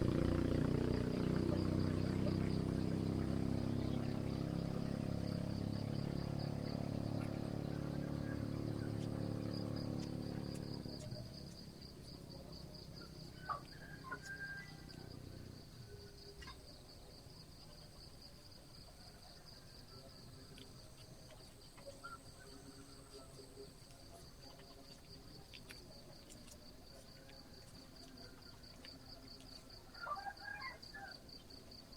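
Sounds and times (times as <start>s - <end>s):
vehicle engine humming: 0.0s - 15.9s.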